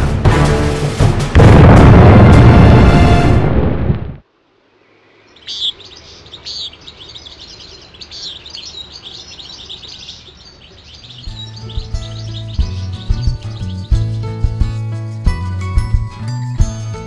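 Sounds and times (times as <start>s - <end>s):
loud music: 0.0s - 3.5s
small birds chirping and singing: 4.9s - 17.0s.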